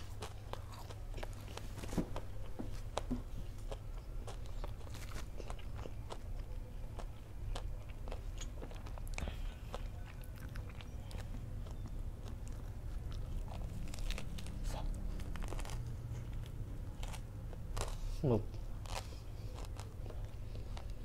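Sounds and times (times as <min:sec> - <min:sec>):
crunchy chewing: 0:00.0 - 0:21.0.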